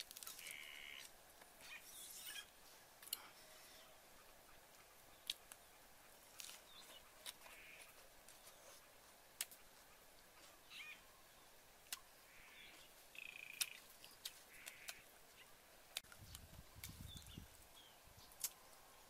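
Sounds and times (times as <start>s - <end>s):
faint short bird calls: 14.5s - 15.5s.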